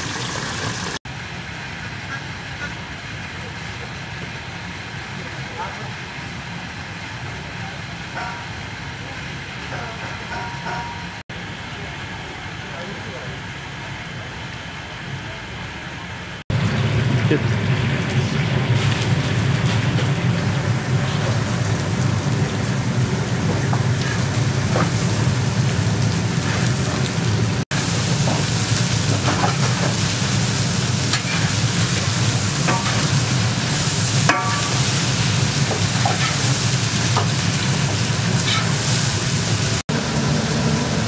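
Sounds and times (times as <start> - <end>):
food sizzling in hot oil: 0.0 - 1.0, 16.5 - 41.0
low rumble of fire: 15.2 - 41.0.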